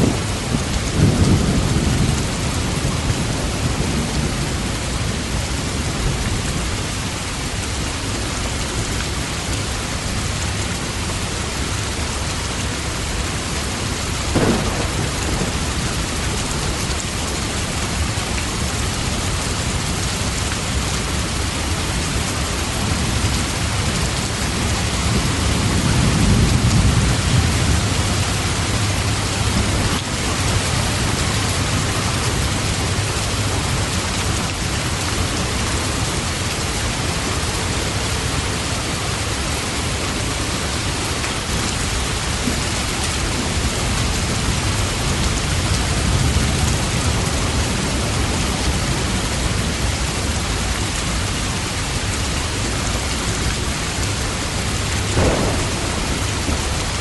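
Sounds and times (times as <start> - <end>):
heavy rain: 0.0 - 57.0
thunder rumbling: 13.7 - 33.8, 53.8 - 57.0
sharp crack: 55.2 - 57.0.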